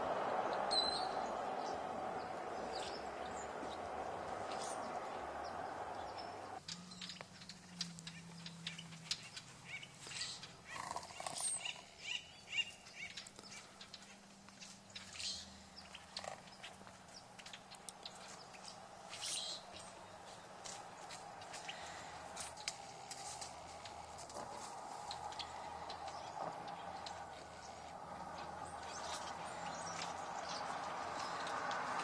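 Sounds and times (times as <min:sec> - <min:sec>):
birds chirping: 0:00.0 - 0:32.0
small clicks and rustles: 0:20.2 - 0:32.0.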